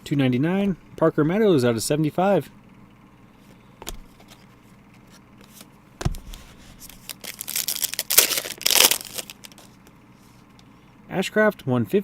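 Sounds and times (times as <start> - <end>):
soft thump: 6.0 - 6.4
foil pack tearing and crinkling: 6.3 - 9.8.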